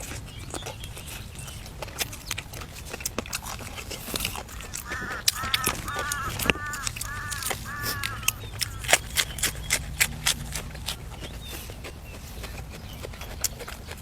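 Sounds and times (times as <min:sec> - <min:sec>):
fowl honking: 0:04.7 - 0:08.8.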